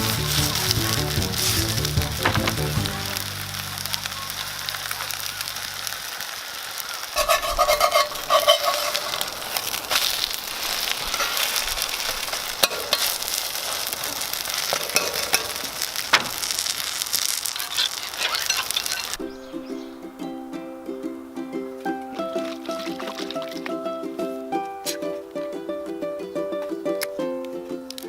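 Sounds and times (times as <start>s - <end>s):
utensil scraping metal pan: 0.0s - 3.3s, 7.2s - 13.4s
pancake sizzling in oil: 0.0s - 19.3s.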